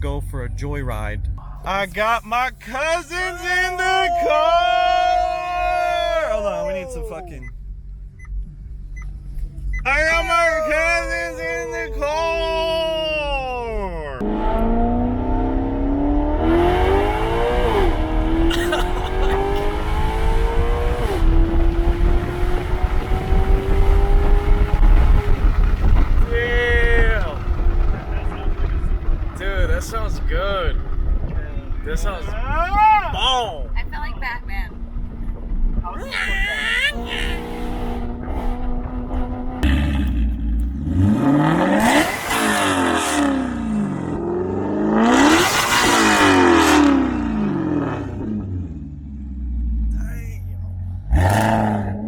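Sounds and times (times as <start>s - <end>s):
car engine accelerating hard: 9.9s - 32.1s, 36.6s - 50.2s, 50.9s - 52.0s.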